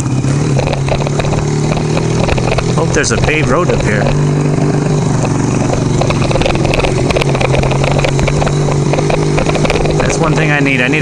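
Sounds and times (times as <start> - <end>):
motorcycle engine running: 0.0 - 11.0
ticks and rattles over bumps: 0.0 - 11.0.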